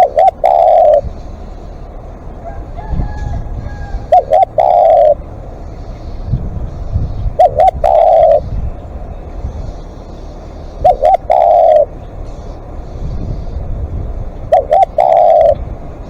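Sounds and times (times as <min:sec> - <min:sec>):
dove cooing: 0:00.0 - 0:09.1, 0:10.2 - 0:12.7, 0:14.4 - 0:15.8
low rumble: 0:00.8 - 0:16.0.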